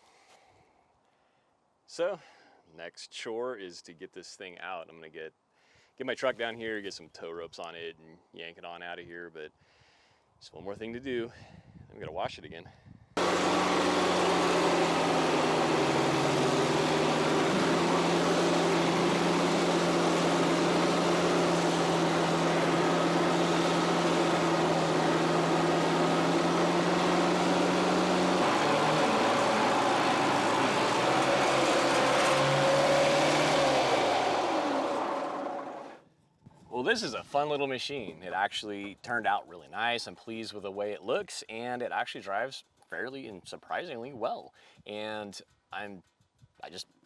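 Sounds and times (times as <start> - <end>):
pressure washer motor hum: 13.2 - 36.0.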